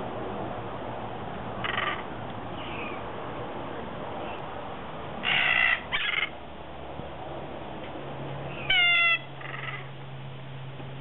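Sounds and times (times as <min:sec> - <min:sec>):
birds calling: 0:01.6 - 0:03.1, 0:05.2 - 0:06.4, 0:08.5 - 0:10.0
harsh bird screeches: 0:05.2 - 0:06.3, 0:08.6 - 0:09.9.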